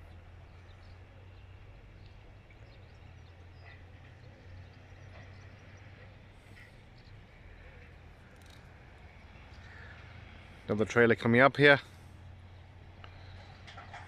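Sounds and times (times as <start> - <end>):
distant diesel machinery droning: 0.0 - 14.0
faint bird chirps: 12.5 - 14.0.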